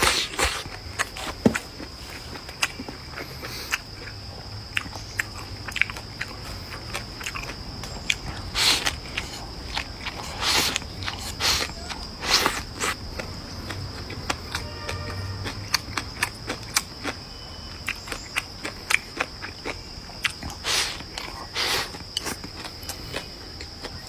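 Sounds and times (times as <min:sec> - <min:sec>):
person chewing and biting: 0:00.0 - 0:24.0
mouth noises: 0:08.1 - 0:15.6.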